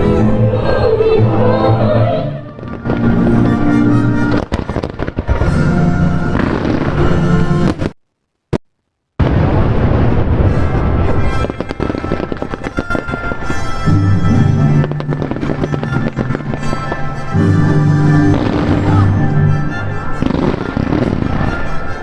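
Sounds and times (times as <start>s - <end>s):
loud music: 0.0s - 7.8s, 10.4s - 22.0s
fireworks bursting: 2.5s - 8.6s, 9.2s - 22.0s.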